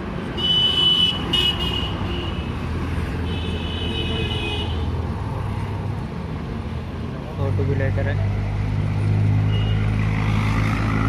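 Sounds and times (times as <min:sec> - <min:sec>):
vehicle horn: 0:03.3 - 0:04.8.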